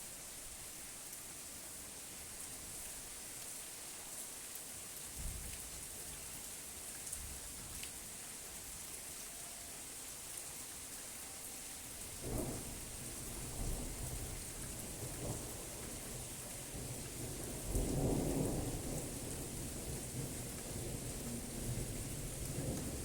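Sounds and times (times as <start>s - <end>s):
steady rain hiss: 0.0s - 23.0s
thunder rumbling: 16.8s - 23.0s.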